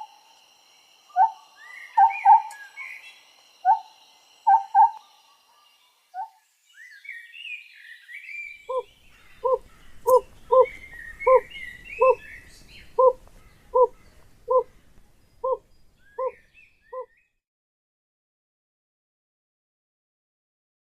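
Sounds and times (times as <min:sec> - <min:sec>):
owl hooting: 0:00.0 - 0:00.4, 0:01.1 - 0:06.4, 0:08.6 - 0:17.1
songbirds twittering: 0:00.0 - 0:17.4.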